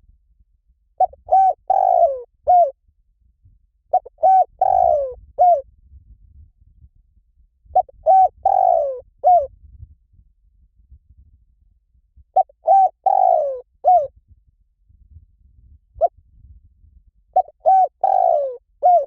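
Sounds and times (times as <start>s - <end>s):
dove cooing: 1.0s - 2.8s, 3.9s - 5.6s, 7.8s - 9.5s, 12.4s - 14.1s, 17.4s - 19.0s.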